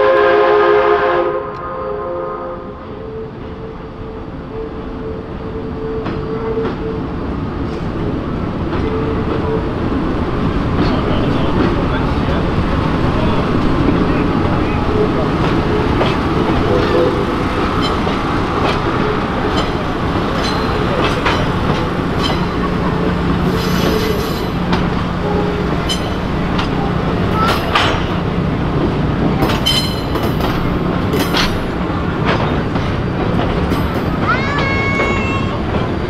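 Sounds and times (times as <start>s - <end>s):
wheel-on-rail rumble: 5.5s - 36.0s
wheel squeals: 18.8s - 24.6s
clicks over rail joints: 29.4s - 34.8s.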